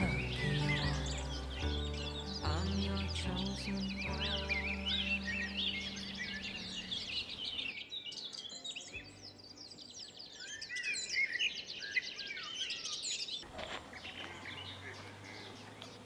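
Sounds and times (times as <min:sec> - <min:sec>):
low background music: 0:00.0 - 0:11.4
songbirds chirping and singing: 0:00.0 - 0:16.0.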